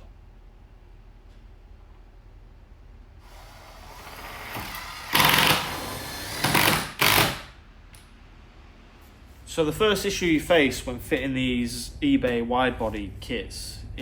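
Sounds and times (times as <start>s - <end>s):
power drill whirring: 3.2s - 7.5s.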